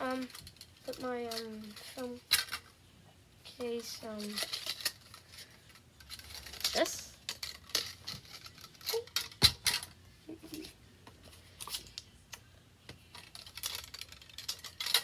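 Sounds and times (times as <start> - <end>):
plastic items clicking: 4.1 - 9.9, 13.1 - 15.0.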